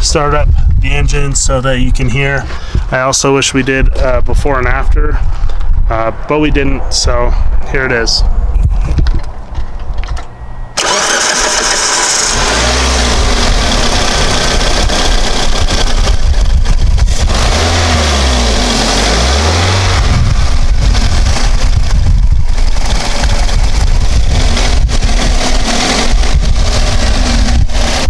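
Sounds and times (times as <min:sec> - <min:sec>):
wind buffeting microphone: 0:00.0 - 0:10.2, 0:13.1 - 0:17.8, 0:19.1 - 0:28.0
car engine starting and revving: 0:10.8 - 0:28.0.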